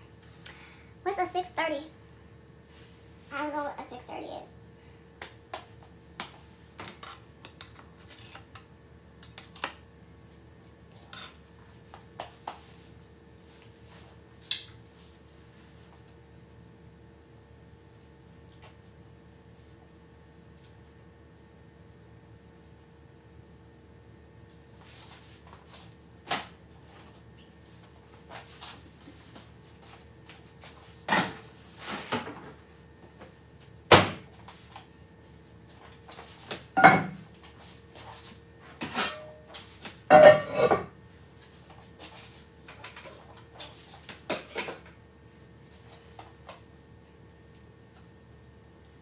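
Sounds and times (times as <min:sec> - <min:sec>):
faint steady hum: 0:00.0 - 0:49.0
kitchen items knocking and clattering: 0:36.8 - 0:37.3, 0:40.1 - 0:40.9.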